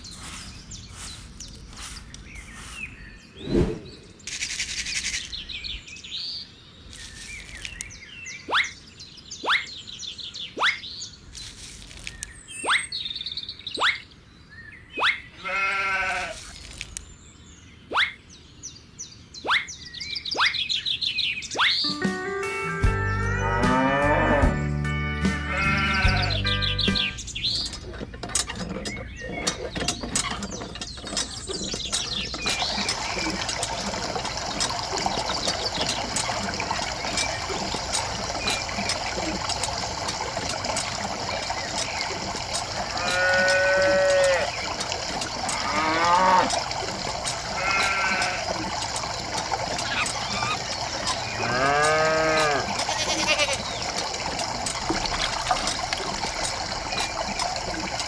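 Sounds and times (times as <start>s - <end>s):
sheep or goats bleating: 15.4s - 16.4s, 25.4s - 26.5s, 43.0s - 44.5s, 47.6s - 48.4s, 51.4s - 53.7s.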